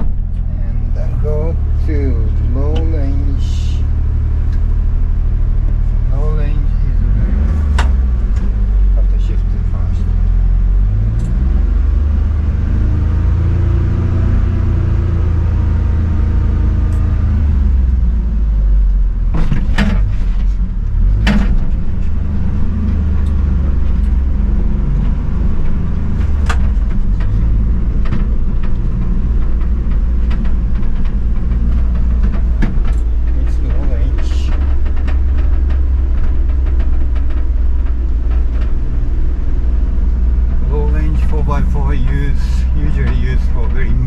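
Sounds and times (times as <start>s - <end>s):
small truck engine running: 0.0s - 44.0s.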